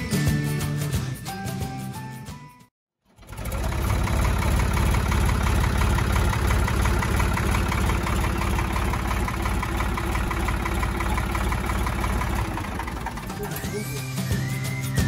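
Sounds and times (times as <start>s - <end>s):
diesel engine idling: 3.0s - 15.0s.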